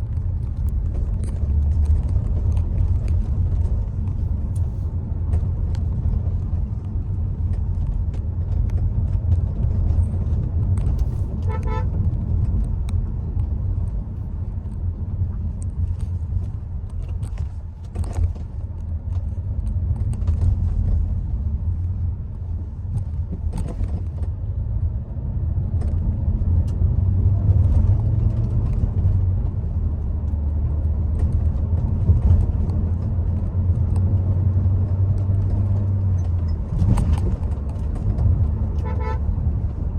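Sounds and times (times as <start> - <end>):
car driving on wet road: 0.0 - 39.9
car horn beeps: 11.5 - 12.0, 38.8 - 39.3.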